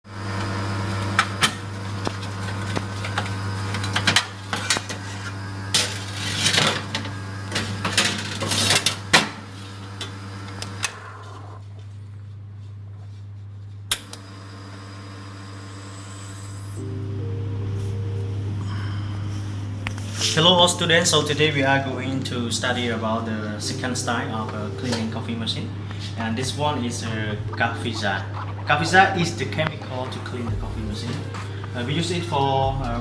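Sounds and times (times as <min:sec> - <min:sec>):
low steady hum: 0:16.8 - 0:33.0.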